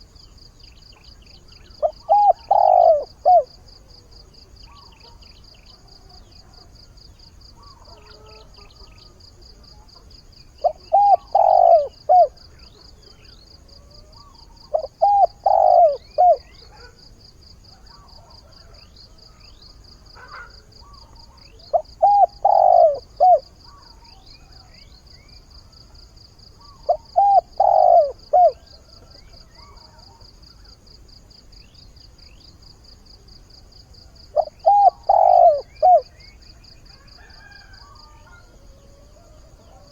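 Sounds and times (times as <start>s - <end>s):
faint twittering of small birds: 0.0s - 39.9s
dove cooing: 1.7s - 3.6s, 10.6s - 12.9s, 13.9s - 17.0s, 20.2s - 24.0s, 26.6s - 30.3s, 34.3s - 39.9s.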